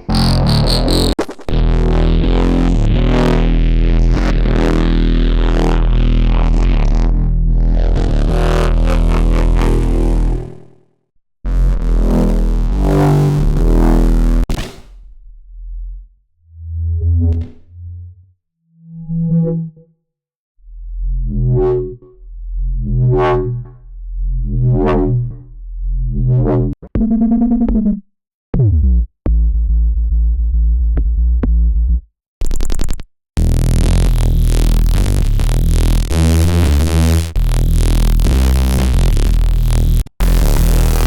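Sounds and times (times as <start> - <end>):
dense loud bass sound: 0.0 - 10.8, 11.4 - 18.2, 28.6 - 32.1, 33.4 - 41.0
synthesizer bass notes: 0.0 - 10.8, 11.5 - 14.5, 33.4 - 41.0.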